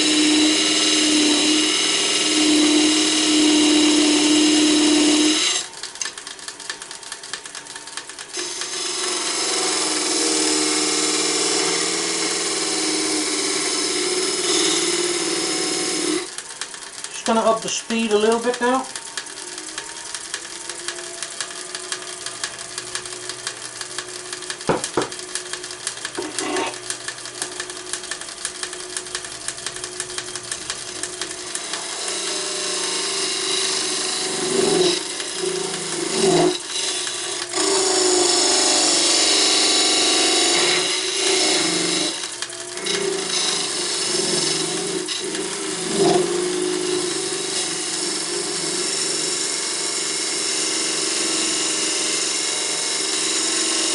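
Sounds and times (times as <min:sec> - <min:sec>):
turning tool cutting wood: 0:00.0 - 0:53.9
wood lathe running: 0:00.0 - 0:53.9.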